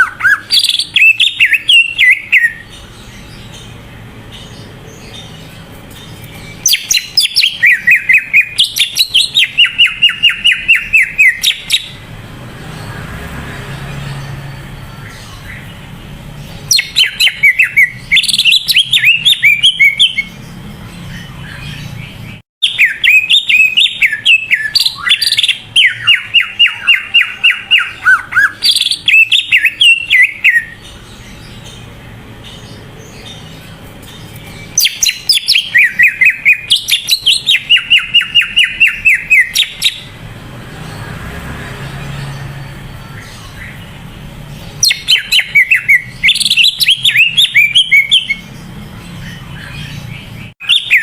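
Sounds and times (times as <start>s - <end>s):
bird singing whistled notes: 0.0s - 3.8s, 6.1s - 12.0s, 16.6s - 31.9s, 34.3s - 40.2s, 44.6s - 51.0s.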